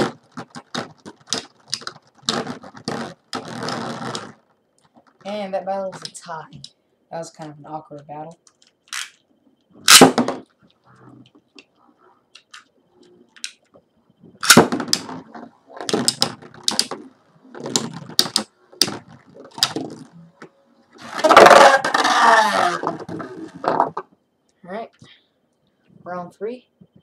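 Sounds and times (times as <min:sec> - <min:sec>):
plastic spinning tops clicking: 0:15.8 - 0:17.0.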